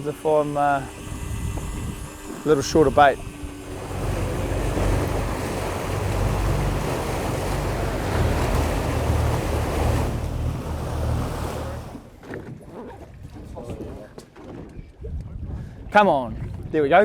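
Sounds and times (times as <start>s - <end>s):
boat engine drone: 0.0s - 12.6s
water rushing along hull: 0.0s - 17.0s
wind buffeting microphone: 0.0s - 17.0s.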